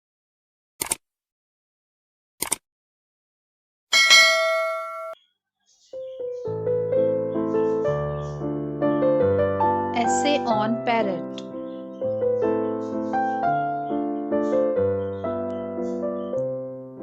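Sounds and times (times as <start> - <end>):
bright chime ringing: 3.9 - 5.2
piano background music: 5.9 - 17.0.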